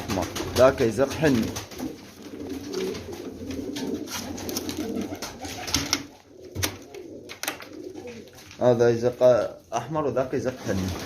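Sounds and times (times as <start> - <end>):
pigeons cooing: 0.0 - 8.6.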